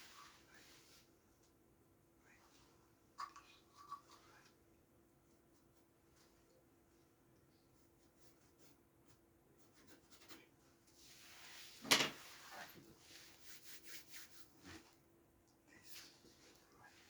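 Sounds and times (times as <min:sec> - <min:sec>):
rubbing and scraping strokes: 0:11.0 - 0:14.9.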